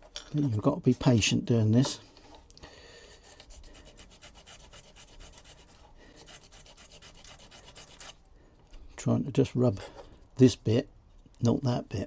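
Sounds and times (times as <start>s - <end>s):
sandpaper scratching wood: 3.2s - 8.2s.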